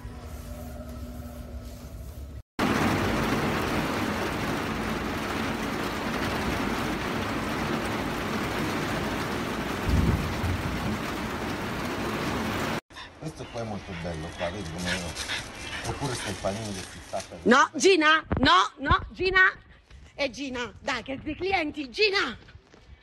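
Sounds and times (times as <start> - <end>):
low rumble of thunder: 2.6 - 11.4
heavy rain: 2.6 - 12.8.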